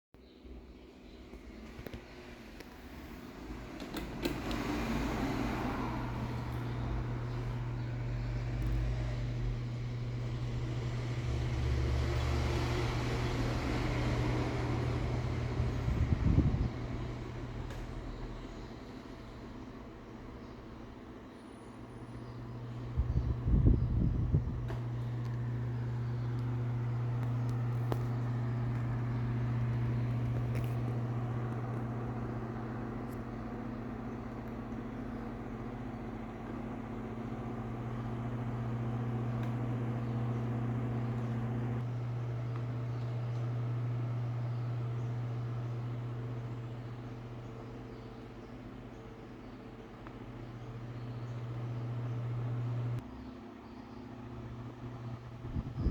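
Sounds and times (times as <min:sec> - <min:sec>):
desk fan motor hum: 0:00.4 - 0:55.9
fan air rush: 0:01.5 - 0:53.0, 0:54.3 - 0:55.9
air rushing from fan blades: 0:02.8 - 0:18.8.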